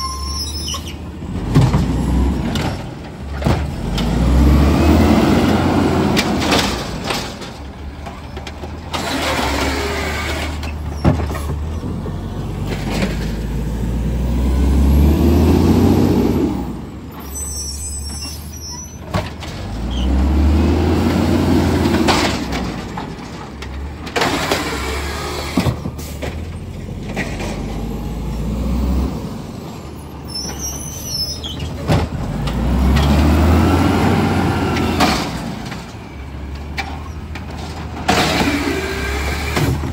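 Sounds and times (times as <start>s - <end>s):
diesel engine revving with whine: 3.7s - 6.6s, 12.4s - 17.0s, 19.7s - 22.2s, 32.3s - 35.6s.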